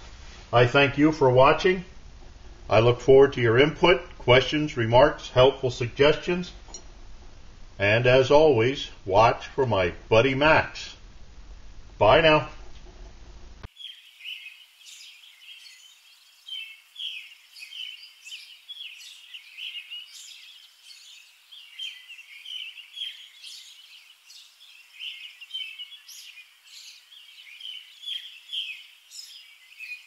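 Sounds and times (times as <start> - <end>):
small birds chirping: 13.6 - 30.0.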